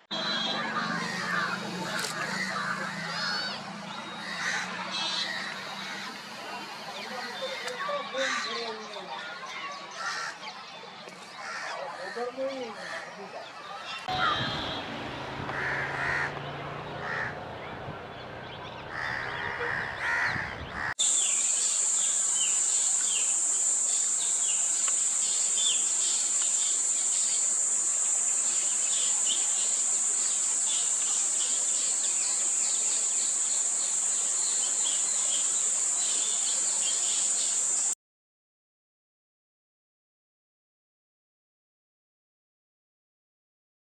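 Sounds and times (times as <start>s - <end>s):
birds calling: 0.1s - 9.0s, 9.7s - 23.3s.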